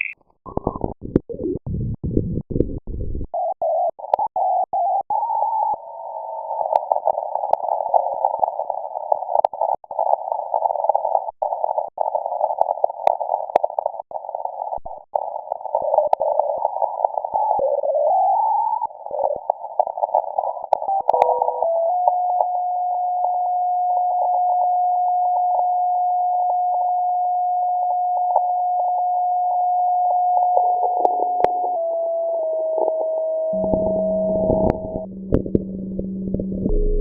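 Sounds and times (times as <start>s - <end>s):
radio static with crackles: 0.0s - 37.0s.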